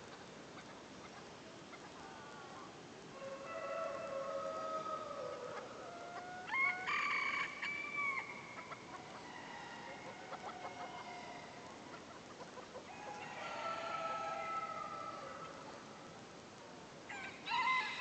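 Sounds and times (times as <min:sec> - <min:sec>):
roosters crowing: 0:03.2 - 0:11.8, 0:12.7 - 0:15.9, 0:17.1 - 0:18.0.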